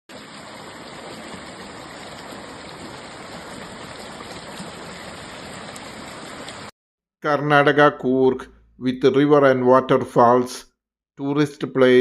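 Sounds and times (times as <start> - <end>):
stream flowing: 0.1 - 6.7.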